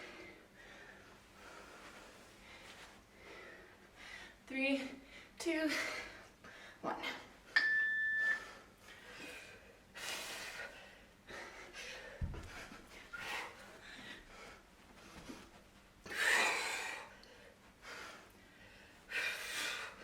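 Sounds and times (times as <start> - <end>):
heavy breathing: 8.3 - 20.0.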